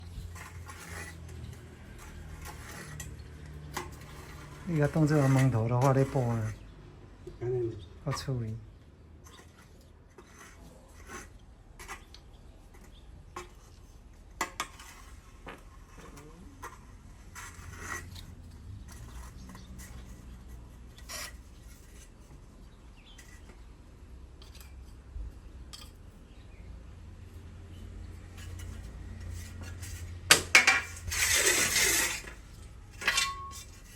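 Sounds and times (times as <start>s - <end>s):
tool scraping and tapping paste: 0.2s - 7.4s, 9.2s - 23.7s, 28.1s - 33.9s.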